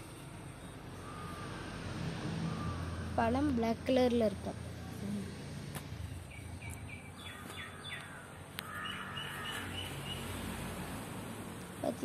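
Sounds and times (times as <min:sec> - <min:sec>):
birds chirping: 0:06.1 - 0:10.6.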